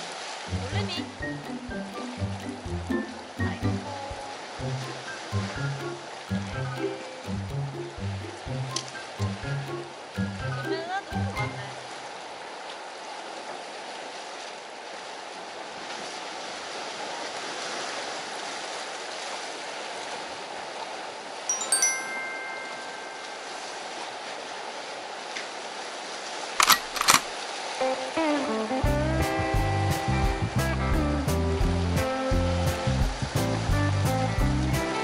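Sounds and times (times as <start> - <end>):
sea waves washing on concrete: 0.0 - 28.8
short bright chime: 21.5 - 23.5.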